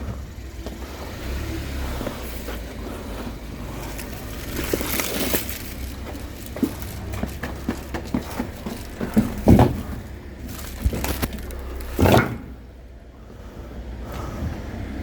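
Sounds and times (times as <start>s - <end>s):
vehicle engine rumbling: 0.0s - 15.0s
knocks and clatter: 3.8s - 12.7s.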